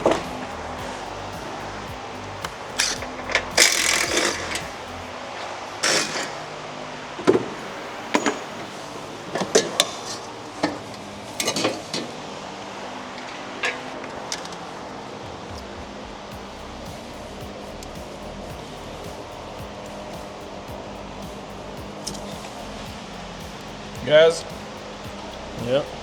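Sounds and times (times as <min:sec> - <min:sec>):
steady low hum: 0:00.0 - 0:05.8, 0:15.2 - 0:26.0.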